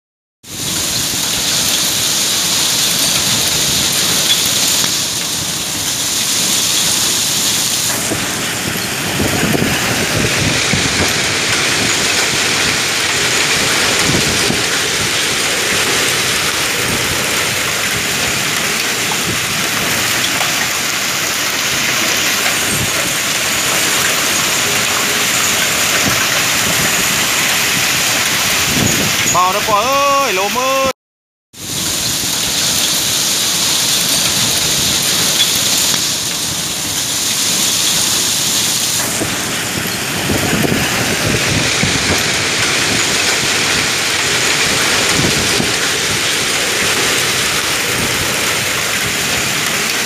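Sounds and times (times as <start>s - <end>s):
heavy rain: 0.4s - 30.9s, 31.6s - 50.0s
strong wind: 0.5s - 30.9s, 31.6s - 50.0s
low gusty rumbles: 7.9s - 29.6s, 39.0s - 50.0s.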